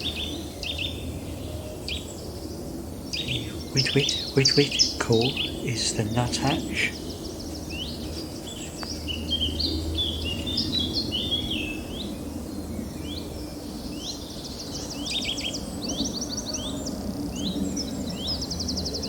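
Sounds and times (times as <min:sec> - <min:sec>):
woodland birds singing: 0:00.0 - 0:19.0.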